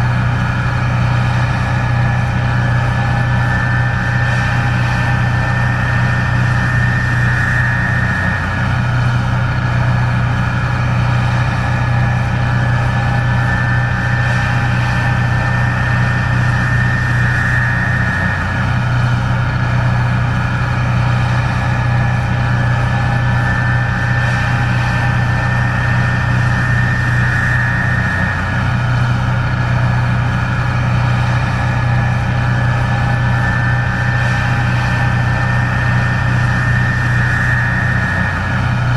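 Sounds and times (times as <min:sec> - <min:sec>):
combine harvester engine drone: 0:00.0 - 0:38.9
high machine whine: 0:00.0 - 0:38.9.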